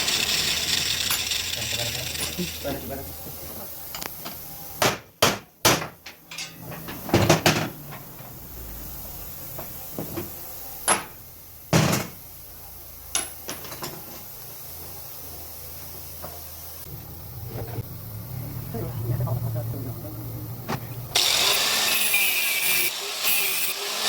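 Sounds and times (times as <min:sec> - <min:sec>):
metal tools knocking and clunking: 0:05.8 - 0:07.7.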